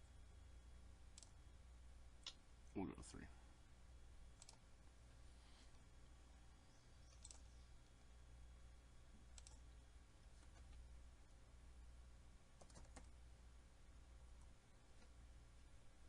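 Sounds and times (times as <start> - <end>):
low steady hum: 0.0 - 16.0
computer mouse clicks: 1.1 - 1.4, 4.4 - 4.6, 7.1 - 7.5, 9.3 - 9.6, 12.6 - 13.2.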